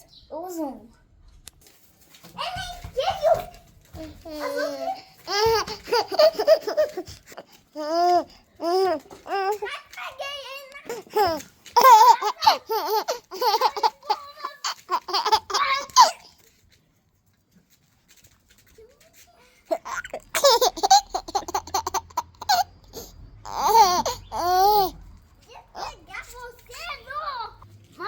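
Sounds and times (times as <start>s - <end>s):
young child laughing: 4.3s - 8.9s, 10.9s - 16.2s, 19.7s - 25.0s
young child babbling: 7.8s - 9.7s, 22.9s - 25.0s, 25.7s - 26.1s.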